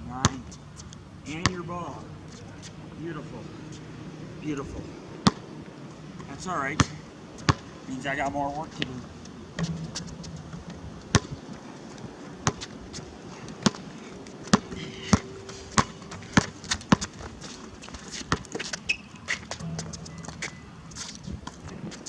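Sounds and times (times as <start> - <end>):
basketball bouncing on hard court: 1.4 - 1.7, 5.2 - 5.4, 6.8 - 7.7, 9.6 - 11.4, 12.4 - 12.7, 13.6 - 20.6.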